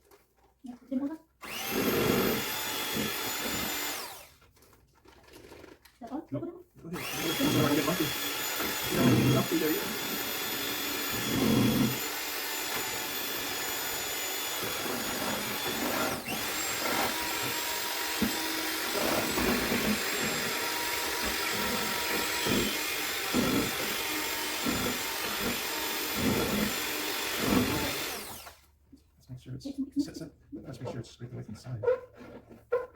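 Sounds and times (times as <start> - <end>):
small electric motor whirring: 1.4 - 4.3, 7.0 - 28.6.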